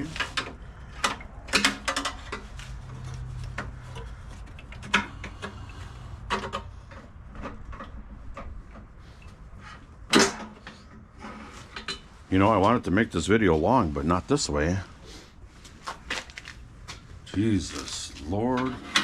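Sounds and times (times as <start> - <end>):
parts and tools clicking and knocking: 0.0 - 12.2, 15.8 - 17.1.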